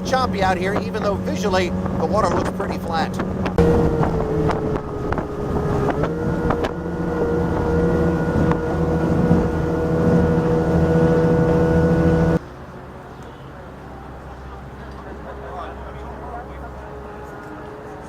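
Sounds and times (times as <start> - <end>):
wind on microphone: 0.0 - 12.4
speedboat outboard engine: 0.0 - 18.0.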